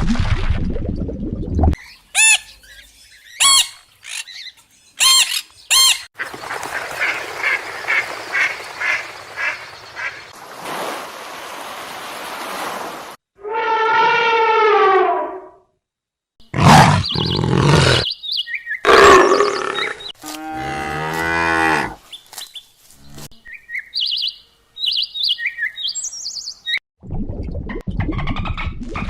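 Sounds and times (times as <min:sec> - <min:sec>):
high bird chirps: 0:16.6 - 0:20.1, 0:23.5 - 0:26.8
cow mooing: 0:18.9 - 0:22.0.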